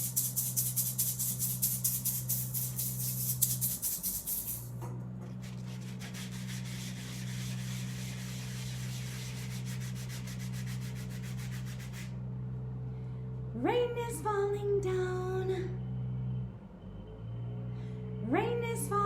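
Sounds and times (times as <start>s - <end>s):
pool noodle scraper rasping: 0.0s - 12.1s
steady low hum: 0.0s - 17.2s.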